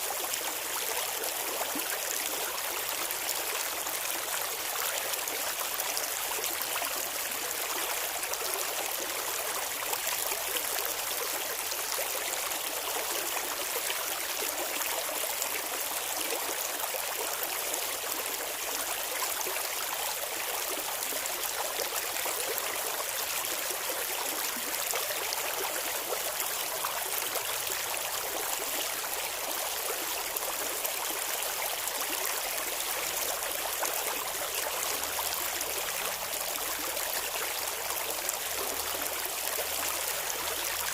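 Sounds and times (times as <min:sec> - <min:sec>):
river water babbling: 0:00.0 - 0:40.9.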